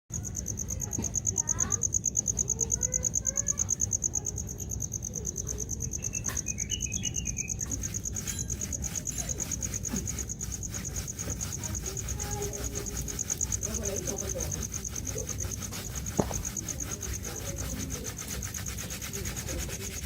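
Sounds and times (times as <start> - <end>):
insect trilling: 0.1 - 20.0
short bird chirps: 6.0 - 7.7.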